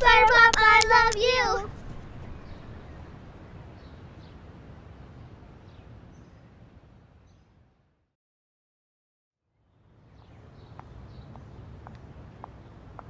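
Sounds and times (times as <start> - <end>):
outdoor background noise: 0.0 - 8.1, 9.4 - 13.0
faint bird chirps: 1.7 - 4.0.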